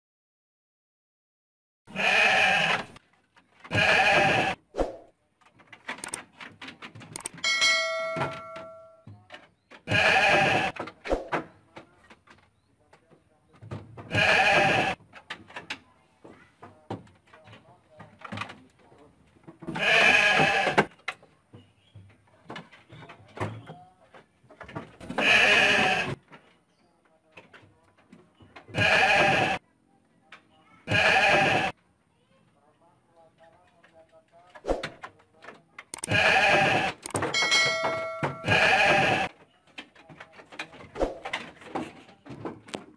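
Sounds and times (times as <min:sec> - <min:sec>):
goats or sheep bleating: 0:01.9 - 0:02.9, 0:03.7 - 0:04.6, 0:09.9 - 0:10.8, 0:14.1 - 0:15.0, 0:19.7 - 0:20.9, 0:25.1 - 0:26.2, 0:28.7 - 0:29.6, 0:30.8 - 0:31.7, 0:36.0 - 0:39.3
small knocks and clicks: 0:05.4 - 0:07.5, 0:15.0 - 0:19.8, 0:33.4 - 0:36.2, 0:36.9 - 0:38.4
bell-like ringing: 0:07.4 - 0:09.0, 0:37.3 - 0:38.6.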